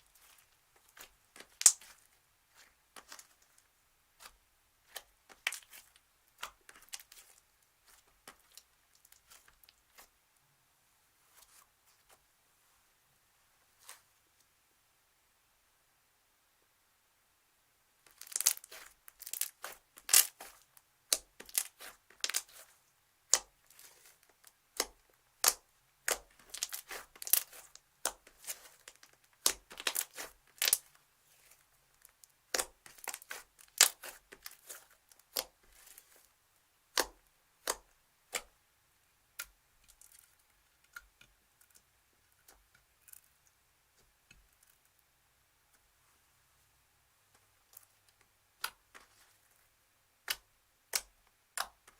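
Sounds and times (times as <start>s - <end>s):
slime crackling and popping: 0.1s - 3.5s, 4.2s - 10.1s, 18.1s - 22.6s, 23.3s - 36.2s.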